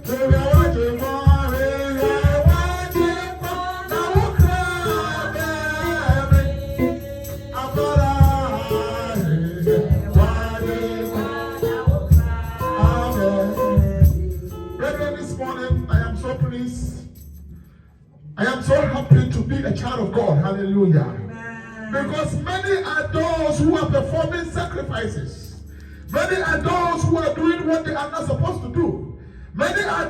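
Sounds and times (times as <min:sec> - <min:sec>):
gospel singing voices: 0:00.0 - 0:17.0, 0:21.9 - 0:27.7
drums and bass beat: 0:00.0 - 0:17.2
shaker or tambourine: 0:00.0 - 0:17.9, 0:25.4 - 0:27.2.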